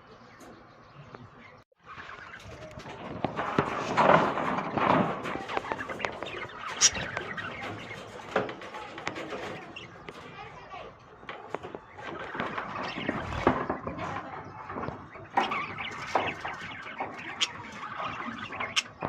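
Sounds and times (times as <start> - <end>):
lovebirds chattering: 0.0 - 19.0.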